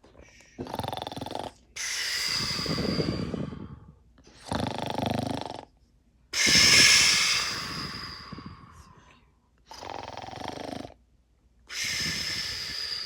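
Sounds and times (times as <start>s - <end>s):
person snoring: 0.6s - 5.7s, 6.4s - 9.0s, 9.7s - 11.0s, 11.8s - 13.0s.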